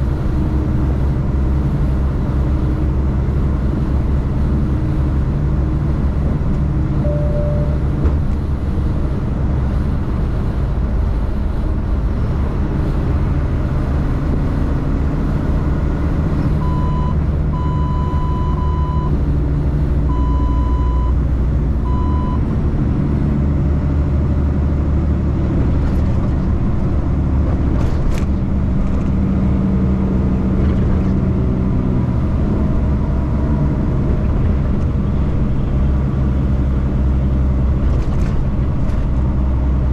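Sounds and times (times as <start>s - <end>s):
truck engine and road noise: 0.0s - 39.9s
short electronic beeps: 7.0s - 7.9s, 16.6s - 19.1s, 20.1s - 21.2s, 21.9s - 22.4s.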